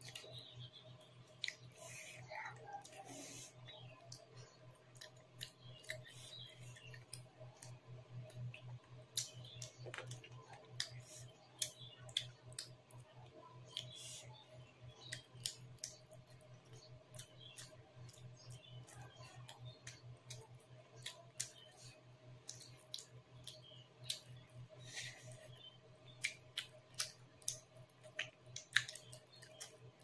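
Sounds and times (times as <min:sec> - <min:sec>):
low steady hum: 0:00.0 - 0:30.0
wet chewing mouth clicks: 0:04.9 - 0:13.0, 0:13.7 - 0:14.0, 0:22.4 - 0:30.0.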